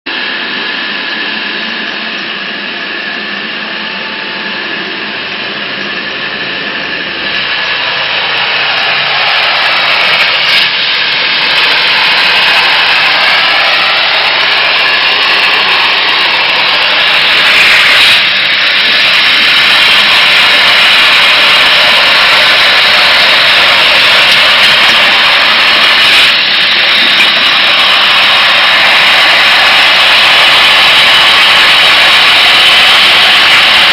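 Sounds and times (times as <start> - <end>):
water jet hissing: 0.1 - 33.9.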